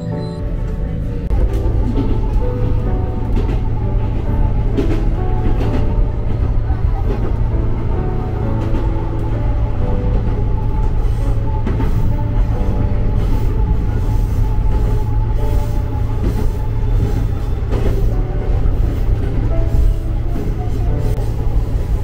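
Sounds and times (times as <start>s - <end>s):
electric train rumbling: 0.0s - 22.0s
simple melody: 0.0s - 22.0s.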